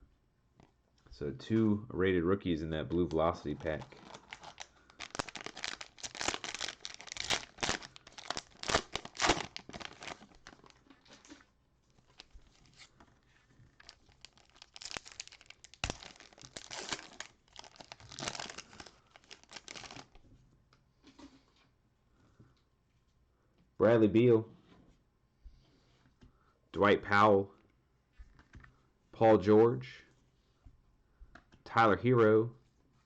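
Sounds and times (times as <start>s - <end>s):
cellophane wrapper tearing and crinkling: 3.4s - 11.4s, 12.0s - 13.0s, 13.7s - 20.2s.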